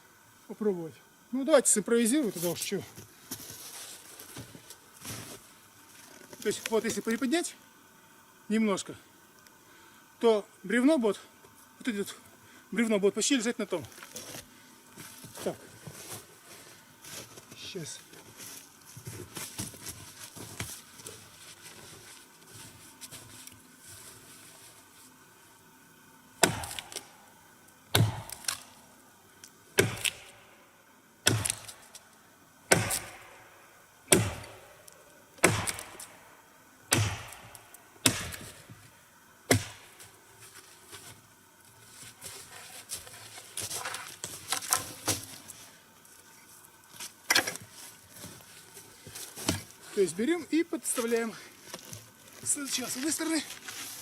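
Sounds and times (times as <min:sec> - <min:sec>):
axe chopping wood: 0:26.4 - 0:27.1, 0:27.9 - 0:28.6, 0:29.8 - 0:30.4, 0:31.2 - 0:31.8, 0:32.7 - 0:33.4, 0:34.1 - 0:34.7, 0:35.4 - 0:36.2, 0:36.9 - 0:38.6, 0:39.5 - 0:40.0.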